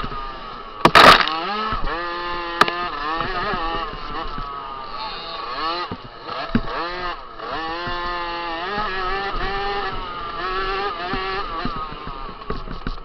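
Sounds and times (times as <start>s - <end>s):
motocross bike engine revving: 0.0s - 12.8s
sharp knocks: 0.8s - 1.9s.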